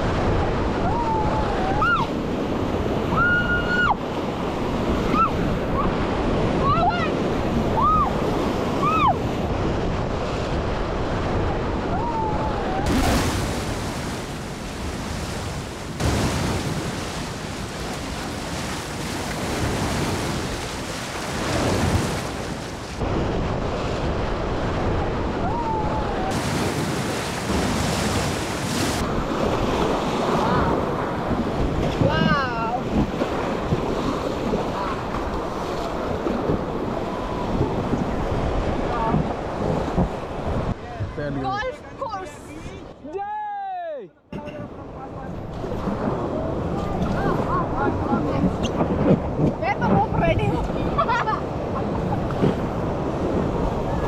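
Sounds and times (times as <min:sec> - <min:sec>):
wind buffeting microphone: 0:00.0 - 0:43.0, 0:44.4 - 0:54.0
person whooping: 0:03.1 - 0:04.0, 0:07.8 - 0:08.1
river water splashing: 0:12.7 - 0:32.1.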